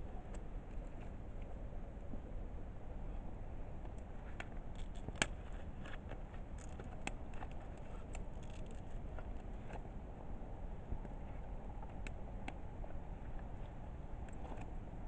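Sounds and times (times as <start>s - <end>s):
firewood crackling and popping: 3.8s - 10.0s.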